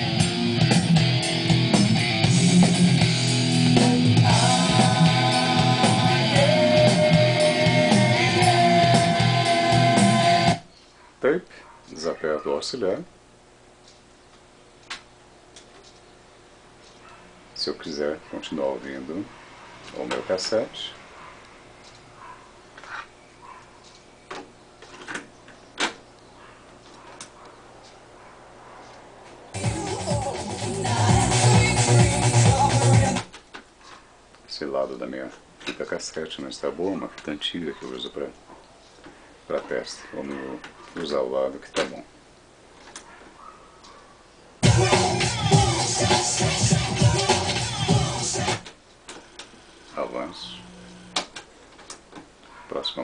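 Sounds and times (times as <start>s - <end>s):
rock music with guitar: 0.0s - 10.6s, 29.6s - 33.3s, 44.6s - 48.6s.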